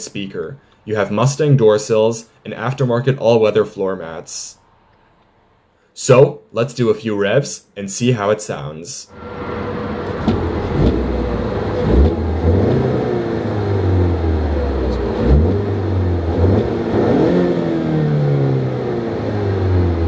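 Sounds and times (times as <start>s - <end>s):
car engine revving: 9.1s - 20.0s.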